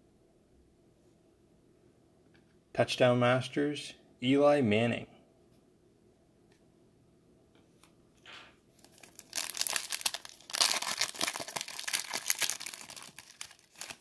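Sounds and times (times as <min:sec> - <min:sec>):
foil wrapper tearing and crinkling: 0:08.8 - 0:14.0.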